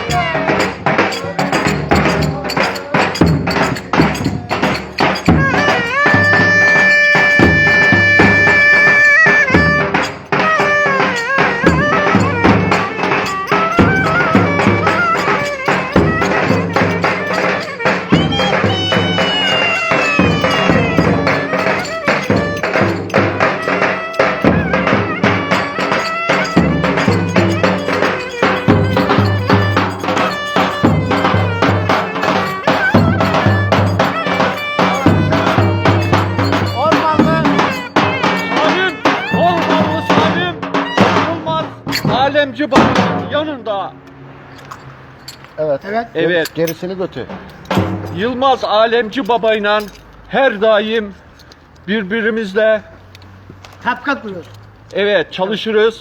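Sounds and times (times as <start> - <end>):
fast drum beat: 0.0 - 41.3
folk dance melody: 0.0 - 42.1.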